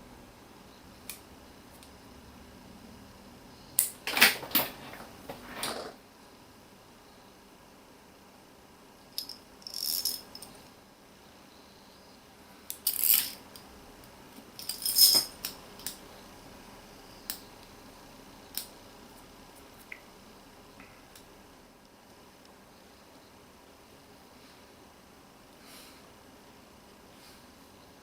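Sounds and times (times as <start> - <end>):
small parts clattering: 4.0 - 6.0, 9.2 - 10.6, 12.7 - 13.4, 14.5 - 16.0
small hard parts clicking: 9.2 - 10.6, 12.7 - 13.7.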